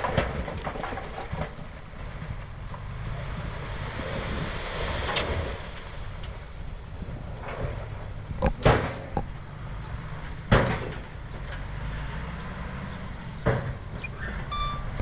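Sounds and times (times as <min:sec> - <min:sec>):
bulldozer diesel engine rumbling: 0:00.0 - 0:15.0
loud sharp knocks: 0:08.4 - 0:09.2, 0:10.5 - 0:11.1.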